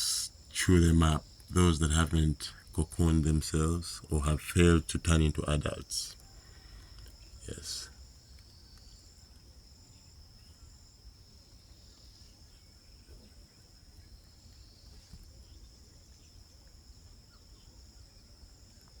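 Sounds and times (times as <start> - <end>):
insect trilling: 0.0 - 10.9.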